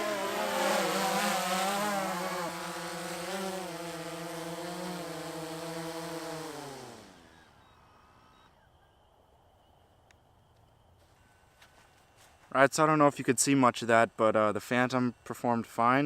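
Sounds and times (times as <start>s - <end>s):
drone propellers humming: 0.0s - 8.4s.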